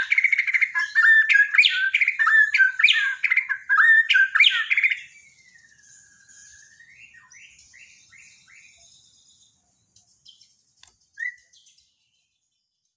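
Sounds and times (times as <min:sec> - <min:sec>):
bird whistling song: 0:00.0 - 0:12.6
click: 0:10.8 - 0:11.0.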